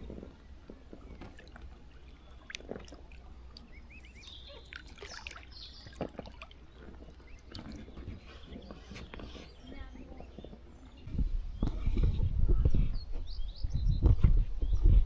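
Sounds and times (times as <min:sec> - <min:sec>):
water trickling and dripping: 0:00.2 - 0:09.3.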